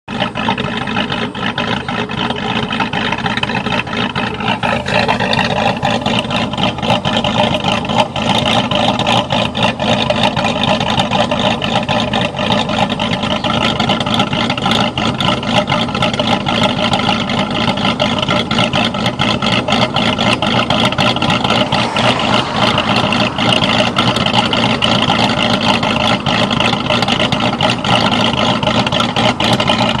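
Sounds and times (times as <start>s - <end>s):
car engine idling unevenly: 0.1s - 30.0s.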